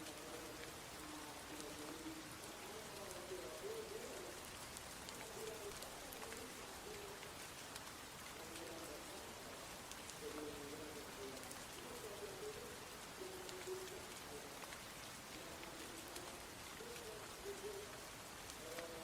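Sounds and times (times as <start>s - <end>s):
rain hissing: 0.0s - 19.0s.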